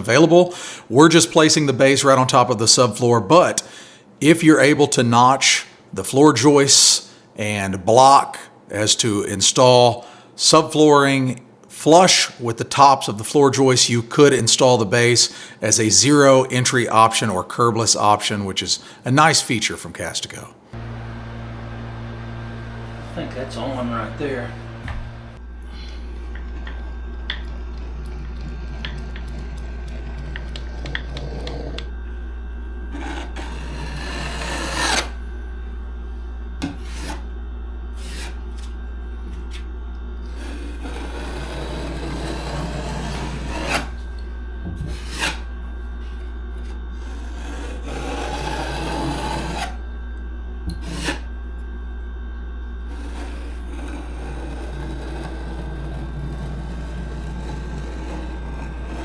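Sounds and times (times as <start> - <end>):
steady low hum: 12.4 - 59.0
hand tool rasping a surface: 33.0 - 35.1, 36.6 - 37.2, 40.4 - 43.9, 47.0 - 49.8, 50.8 - 51.3, 52.9 - 59.0.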